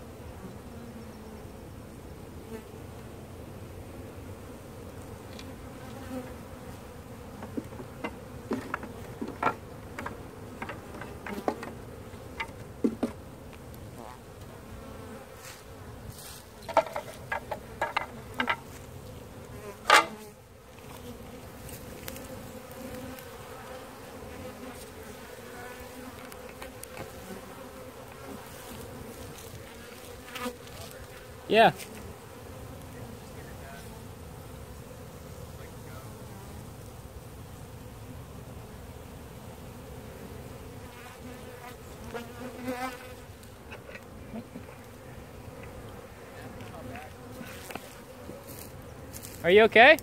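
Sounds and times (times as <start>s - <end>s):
honey bees buzzing: 0.0s - 50.0s.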